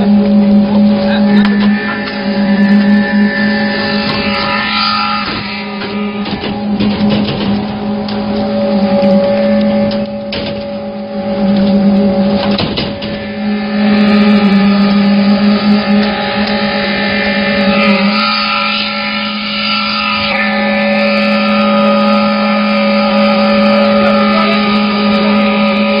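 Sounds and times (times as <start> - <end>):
concrete pump machine droning: 0.0 - 26.0
knocks: 5.2 - 8.2.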